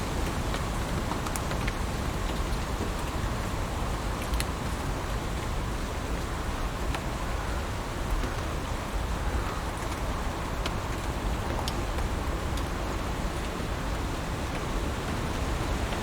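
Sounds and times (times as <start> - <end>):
raindrops ticking close by: 0.1 - 16.0
heavy rain hissing: 13.2 - 16.0.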